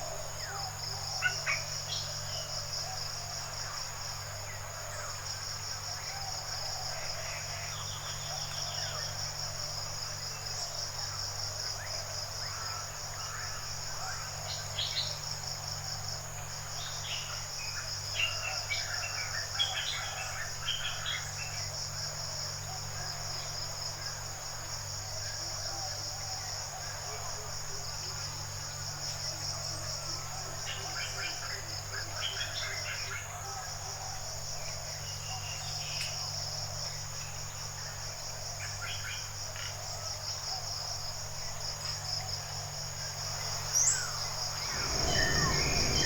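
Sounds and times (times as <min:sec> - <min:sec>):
insects trilling: 0:00.0 - 0:46.0
steady low hum: 0:43.6 - 0:46.0
bird chirps: 0:43.8 - 0:46.0.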